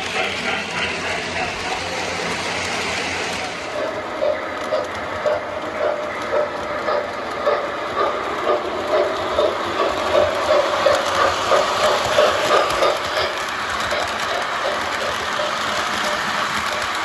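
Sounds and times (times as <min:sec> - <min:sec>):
model train running on track: 0:00.0 - 0:17.0
train track clicks: 0:00.0 - 0:17.0.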